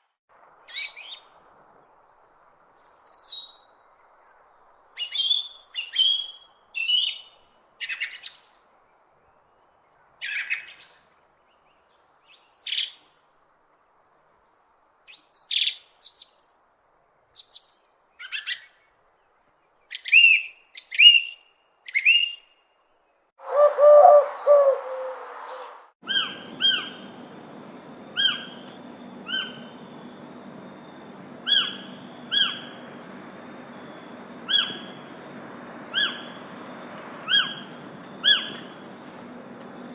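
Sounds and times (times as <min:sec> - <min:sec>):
songbirds chirping: 0:00.5 - 0:39.9
steady background hiss: 0:22.8 - 0:39.9
bird repeating short call: 0:23.4 - 0:27.0
lower longer bird call: 0:23.4 - 0:27.2.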